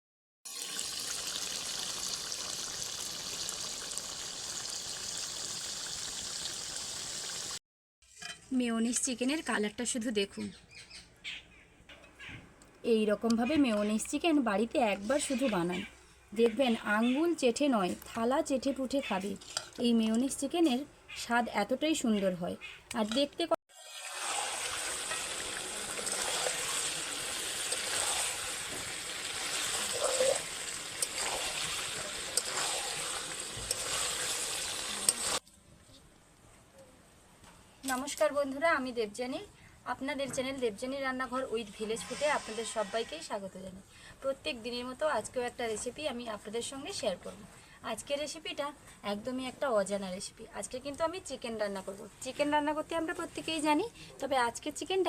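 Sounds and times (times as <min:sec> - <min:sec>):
food sizzling in hot oil: 0:00.5 - 0:09.3, 0:23.7 - 0:35.4, 0:41.6 - 0:43.4.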